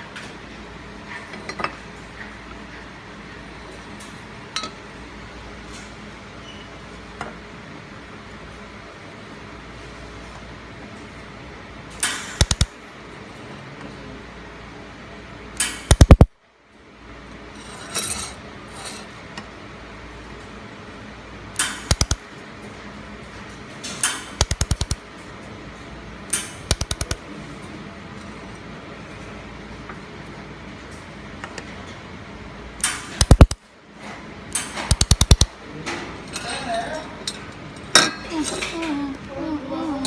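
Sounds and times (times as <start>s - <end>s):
laser welder bursts and snaps: 12.0s - 12.8s, 15.6s - 16.3s, 21.6s - 22.2s, 24.4s - 25.0s, 26.7s - 27.2s, 32.8s - 33.6s, 34.9s - 35.5s
steady machine hum: 33.1s - 33.7s.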